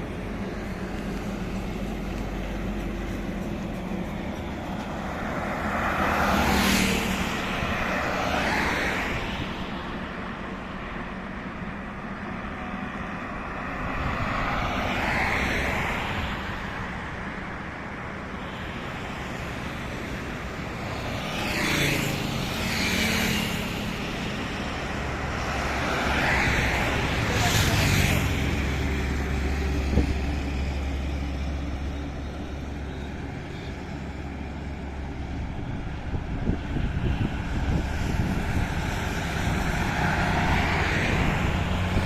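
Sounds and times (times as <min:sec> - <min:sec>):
highway traffic rumble: 0:00.0 - 0:42.0
vehicles passing by: 0:00.0 - 0:42.0.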